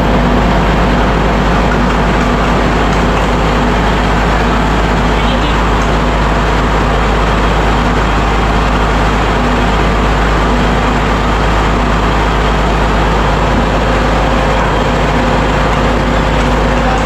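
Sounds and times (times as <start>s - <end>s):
engine room machinery drone: 0.0s - 17.0s.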